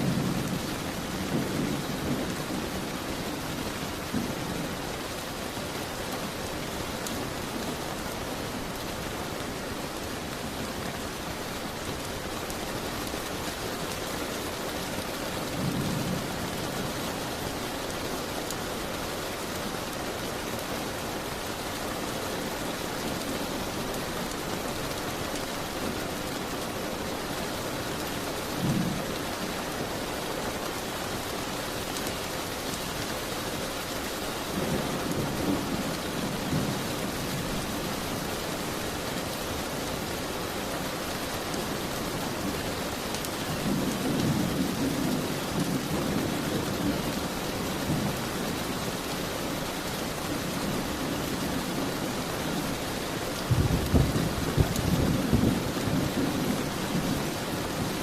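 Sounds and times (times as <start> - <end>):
rain pattering on window: 0.0 - 58.0.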